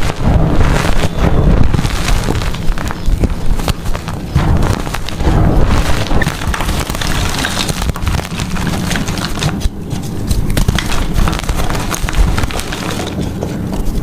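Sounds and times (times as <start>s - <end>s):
low thuds: 0.0s - 9.0s
chalk crunching: 0.0s - 14.0s.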